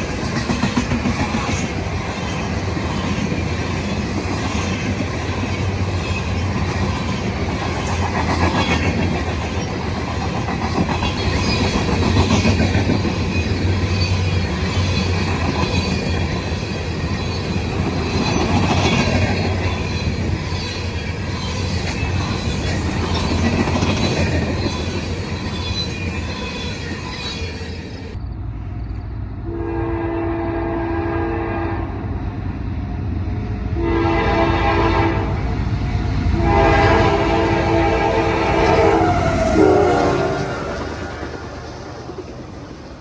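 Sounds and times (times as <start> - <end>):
freight train passing: 0.0 - 43.0
locomotive horn blasts: 29.5 - 32.0, 33.8 - 35.4, 36.4 - 40.9.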